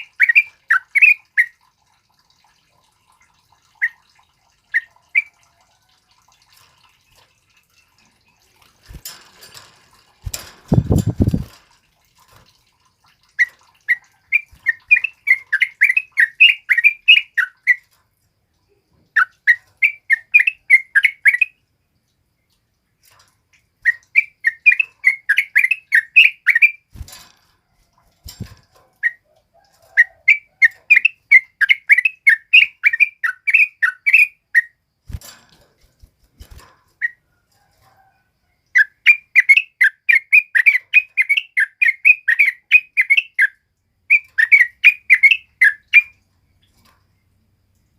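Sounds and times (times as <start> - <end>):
bulbul singing: 0.0 - 1.6, 13.4 - 17.9, 18.7 - 21.6, 23.8 - 27.0, 28.2 - 35.2, 38.7 - 46.2.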